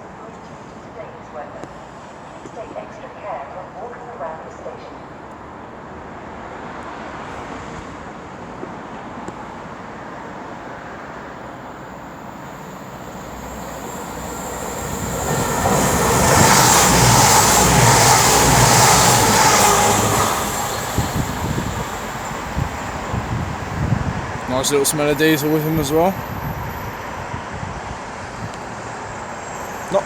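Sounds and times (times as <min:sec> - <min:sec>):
diesel train passing: 0:05.2 - 0:30.0.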